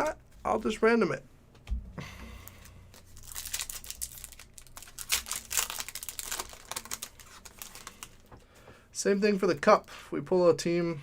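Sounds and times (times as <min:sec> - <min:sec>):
wrapper crinkling and tearing: 0:02.9 - 0:08.3.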